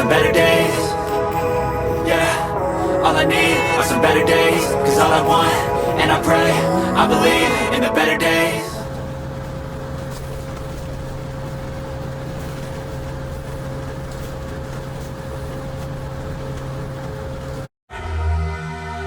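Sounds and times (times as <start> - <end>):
constant mid-pitched tone: 0.0 - 9.6
machine hum: 0.0 - 13.8.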